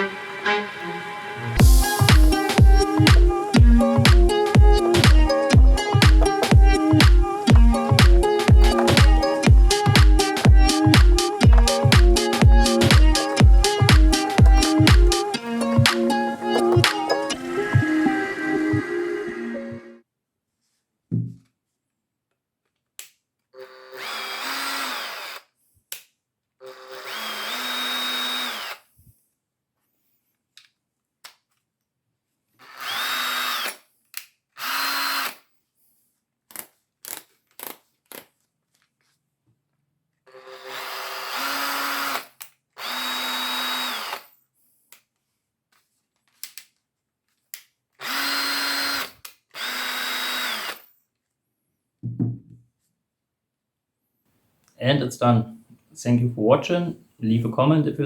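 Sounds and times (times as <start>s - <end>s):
cordless drill whining: 1.6s - 19.2s, 23.6s - 25.5s, 26.6s - 28.9s, 32.6s - 33.8s, 34.6s - 35.4s, 40.3s - 44.3s, 48.0s - 50.9s.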